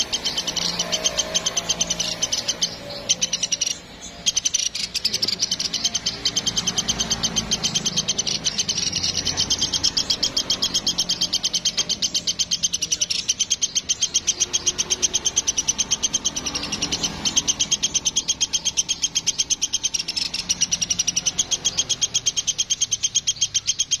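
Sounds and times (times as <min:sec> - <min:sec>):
woodpecker chattering trill: 0:00.0 - 0:24.0.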